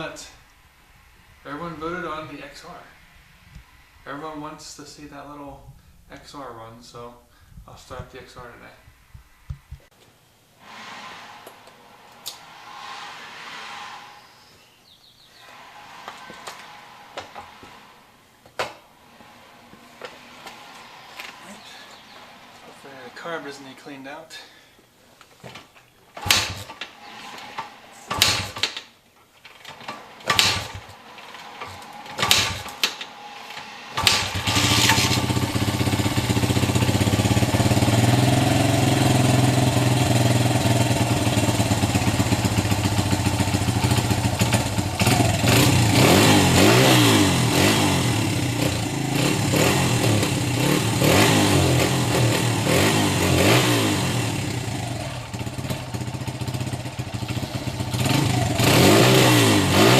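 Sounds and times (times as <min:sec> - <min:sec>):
motorcycle being kick-started: 0:25.5 - 0:27.0, 0:27.6 - 0:33.1, 0:34.0 - 0:46.0
motorcycle engine revving: 0:30.2 - 0:59.9.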